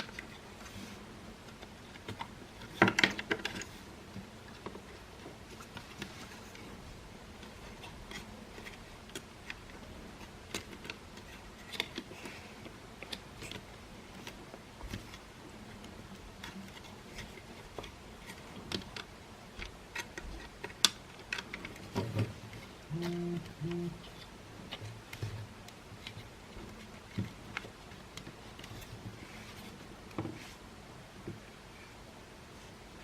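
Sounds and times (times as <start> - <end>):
plastic parts clicking and tapping: 1.5 - 6.7, 7.4 - 15.2, 15.8 - 29.1
short low buzzes: 22.9 - 24.0.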